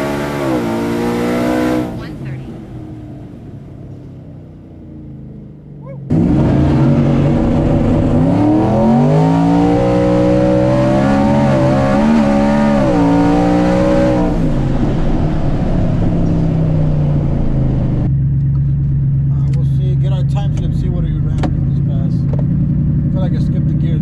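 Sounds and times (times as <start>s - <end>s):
truck engine revving: 0.0s - 4.0s, 6.0s - 24.0s.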